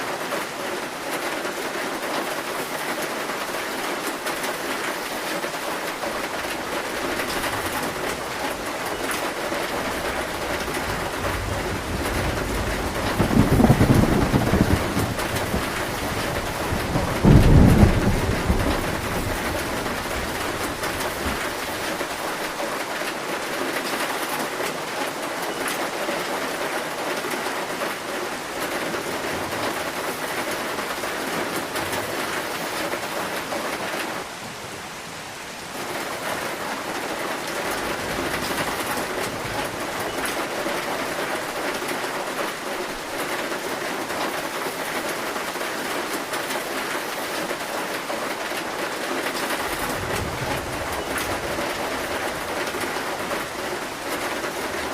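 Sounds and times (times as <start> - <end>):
heavy rain on a metal roof: 0.0 - 54.9
low roll of thunder: 9.8 - 21.6, 49.6 - 53.7.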